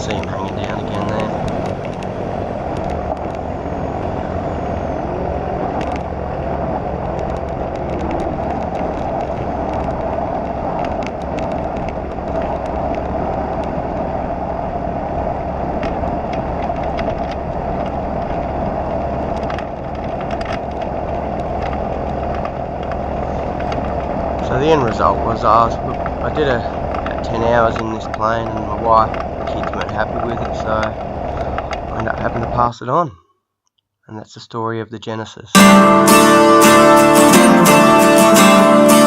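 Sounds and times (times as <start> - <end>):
aircraft engine and propeller droning: 0.0 - 32.6
rush of airflow: 1.3 - 27.2.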